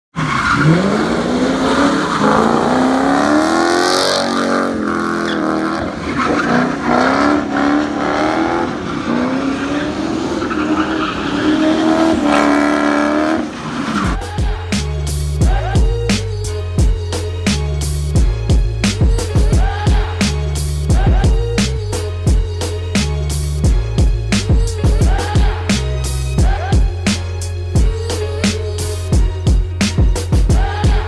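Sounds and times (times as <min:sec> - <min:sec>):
tyres sliding on wet asphalt: 0:00.2 - 0:02.9, 0:04.2 - 0:07.5, 0:08.6 - 0:12.6, 0:13.4 - 0:14.2
car engine revving hard: 0:00.5 - 0:14.2
music with thumping beat: 0:14.1 - 0:31.0.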